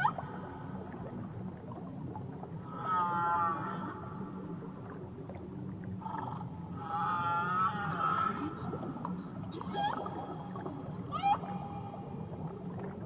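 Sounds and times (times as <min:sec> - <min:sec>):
low underwater rumble and hiss: 0:00.0 - 0:13.0
whale calls underwater: 0:02.6 - 0:04.5, 0:06.0 - 0:12.8.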